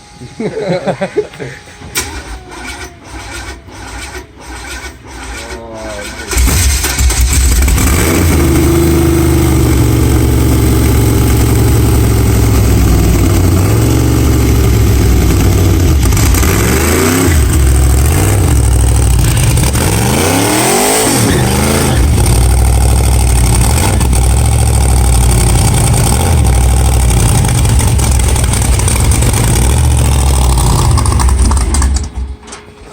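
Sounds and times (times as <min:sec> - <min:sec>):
car engine running rough: 0:06.3 - 0:32.4.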